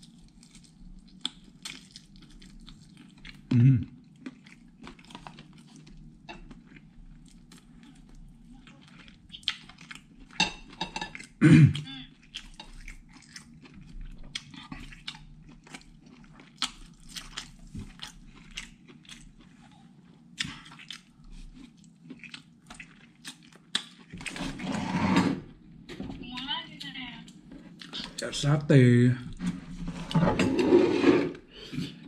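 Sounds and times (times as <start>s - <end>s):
wet chewing and lip-smacking: 0.0s - 24.4s, 26.8s - 28.2s
throat sound: 3.5s - 3.9s.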